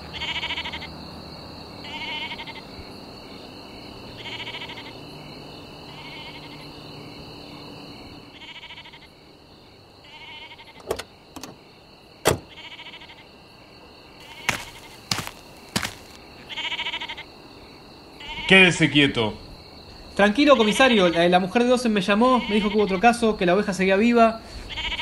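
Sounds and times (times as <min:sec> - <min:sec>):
sheep bleating: 0:00.2 - 0:00.8, 0:01.8 - 0:02.6, 0:04.2 - 0:04.9, 0:08.4 - 0:09.1, 0:10.1 - 0:10.8, 0:12.5 - 0:13.2, 0:14.2 - 0:17.2, 0:22.3 - 0:23.0, 0:24.7 - 0:25.0
car door opening: 0:10.8 - 0:11.6, 0:12.2 - 0:12.5.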